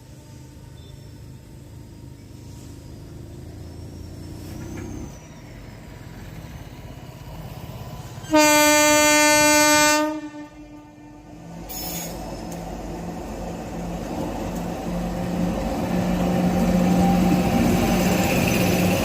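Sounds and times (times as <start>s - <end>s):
train rumbling: 0.0s - 19.0s
locomotive horn blast: 8.3s - 11.4s.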